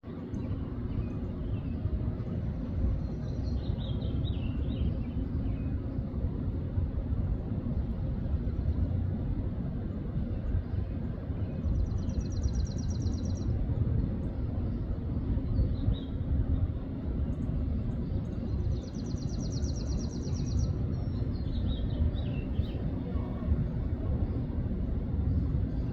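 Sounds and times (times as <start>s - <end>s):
low outdoor rumble: 0.0s - 25.9s
birds chirping: 10.6s - 13.5s, 18.0s - 23.9s.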